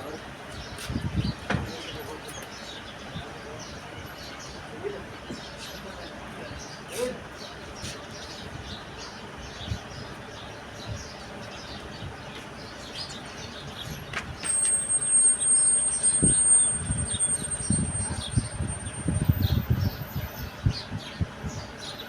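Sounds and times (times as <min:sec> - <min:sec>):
birds chirping: 0:00.0 - 0:22.0
thin high whistle: 0:14.5 - 0:18.4.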